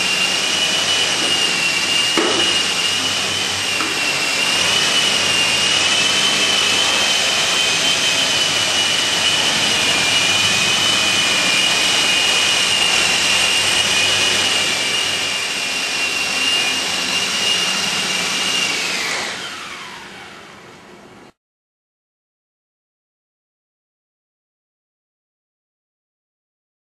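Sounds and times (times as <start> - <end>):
rotor noise: 0.0 - 20.0
model helicopter motor whine: 0.0 - 20.6.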